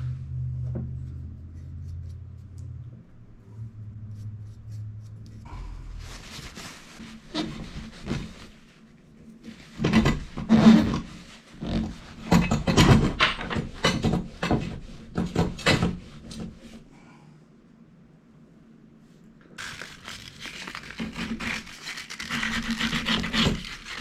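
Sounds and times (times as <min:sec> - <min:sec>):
faint steady hum: 0:00.0 - 0:12.7, 0:14.0 - 0:24.0
scraping and rubbing strokes: 0:00.9 - 0:12.3, 0:19.0 - 0:24.0.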